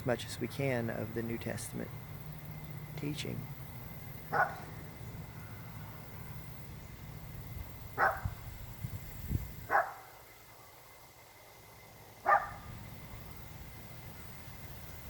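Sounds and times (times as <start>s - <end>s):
dog barking: 4.3s - 4.7s, 8.0s - 8.4s, 9.7s - 10.1s, 12.2s - 12.7s.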